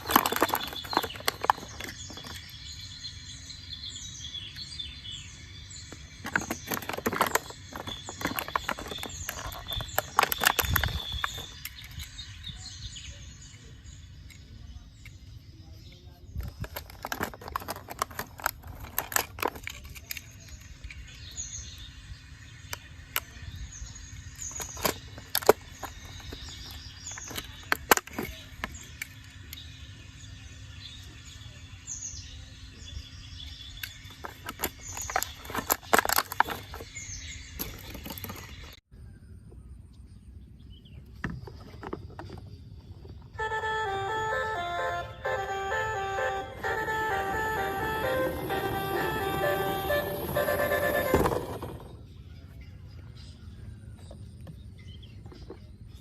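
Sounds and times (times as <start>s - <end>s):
small birds chirping: 0.0s - 43.4s
clicking and rattling knocks: 6.2s - 11.6s.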